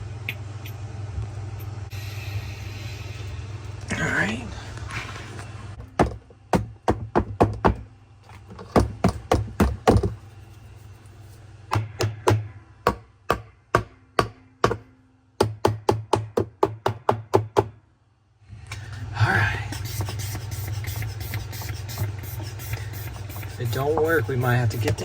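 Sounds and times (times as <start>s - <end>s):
steady low hum: 0.0s - 25.0s
sharp knocks on metal: 11.7s - 17.7s.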